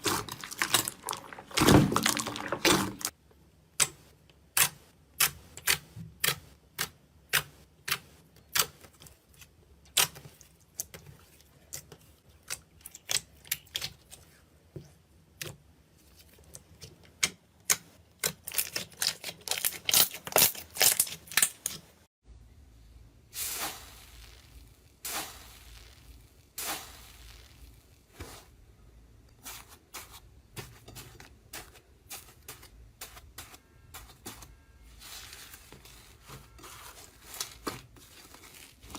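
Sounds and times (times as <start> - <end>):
soft crinkling: 0.0 - 3.1, 29.3 - 38.9.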